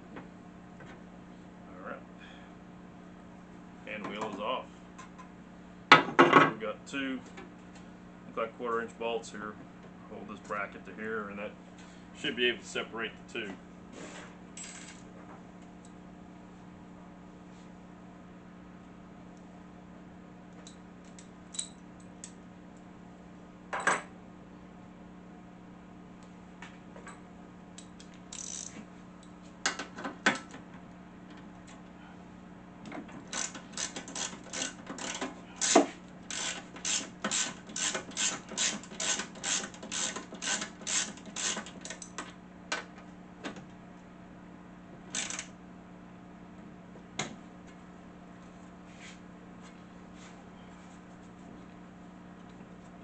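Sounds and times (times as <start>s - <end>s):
ratchet wrench clicking: 28.3s - 28.8s, 33.3s - 42.1s, 45.2s - 45.5s.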